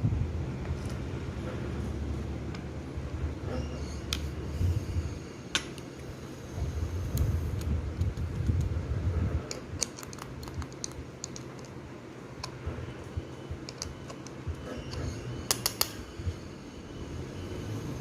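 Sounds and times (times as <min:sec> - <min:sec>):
small hard objects clicking: 0:09.5 - 0:11.8, 0:15.5 - 0:16.0.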